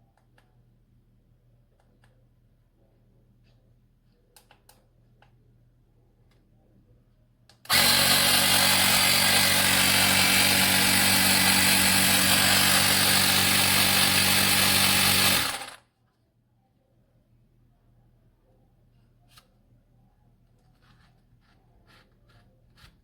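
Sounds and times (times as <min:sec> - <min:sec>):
small compressor running with hiss: 0:07.7 - 0:15.8.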